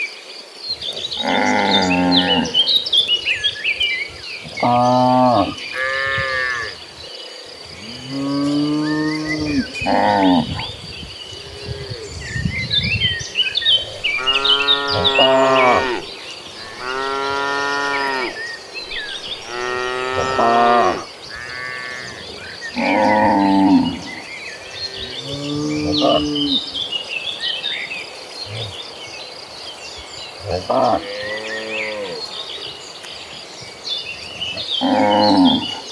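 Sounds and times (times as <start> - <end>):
cattle mooing: 1.2 - 2.7, 7.8 - 10.7, 14.1 - 18.4, 19.4 - 24.2.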